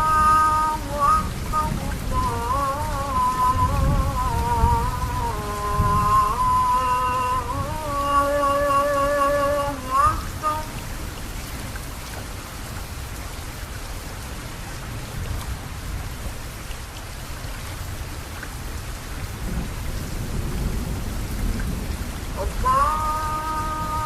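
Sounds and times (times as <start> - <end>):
rolling thunder: 0.0 - 9.6, 19.4 - 24.0
man chanting: 0.0 - 10.7, 22.4 - 24.0
rain falling: 0.0 - 24.0.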